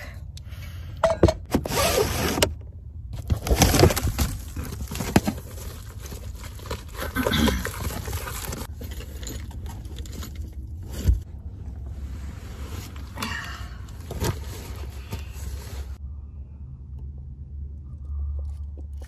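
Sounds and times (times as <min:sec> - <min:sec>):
low steady hum: 0:00.0 - 0:19.0
foil insulation rustling: 0:03.2 - 0:11.3.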